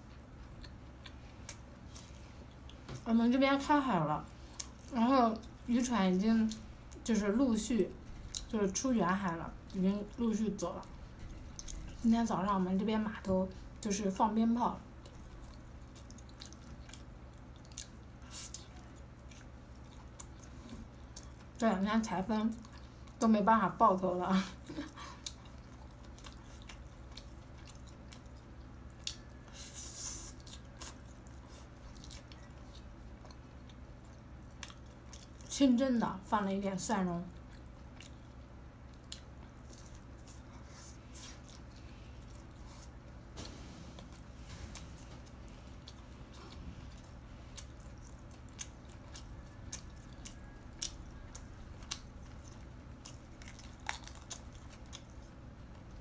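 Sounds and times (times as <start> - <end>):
wet chewing and squelching: 0.0 - 3.0, 7.7 - 12.1, 14.8 - 23.6, 24.6 - 35.6, 37.3 - 56.0
faint low hum: 0.0 - 56.0.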